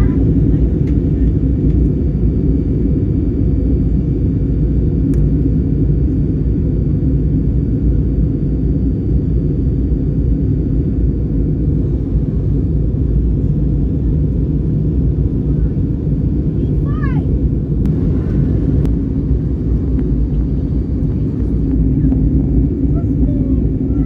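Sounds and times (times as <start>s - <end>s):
airplane cabin engine rumble: 0.0s - 24.0s.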